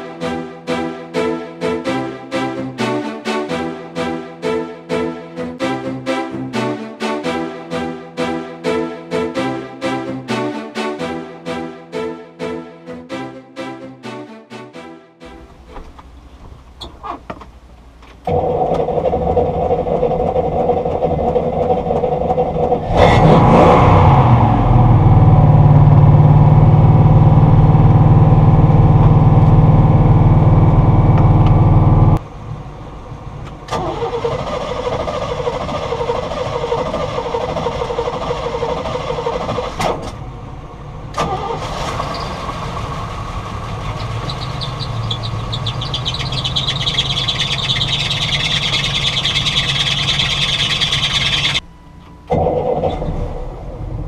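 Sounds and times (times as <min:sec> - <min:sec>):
boat engine running: 0:42.9 - 0:51.6.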